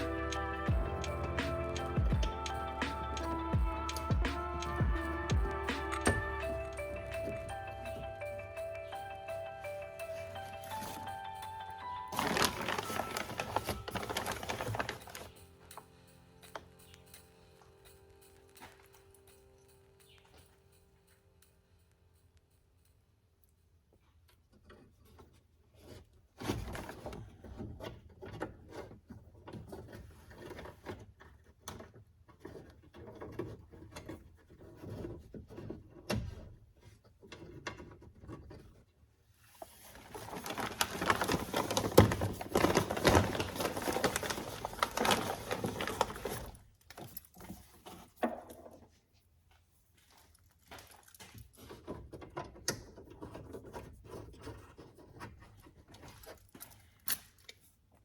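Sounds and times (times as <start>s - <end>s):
tools and metal parts rattling: 0.0s - 20.8s, 39.6s - 48.6s.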